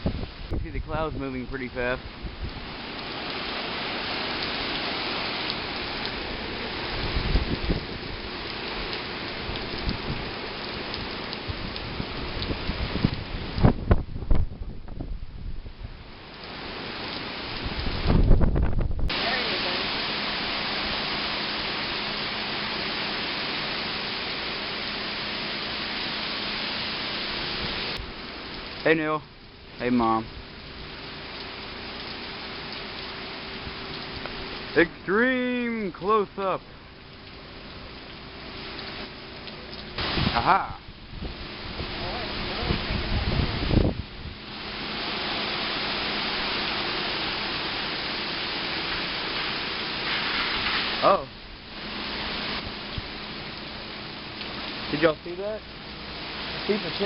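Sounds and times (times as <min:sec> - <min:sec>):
heavy rain hissing: 0:00.0 - 0:14.8, 0:15.9 - 0:57.0.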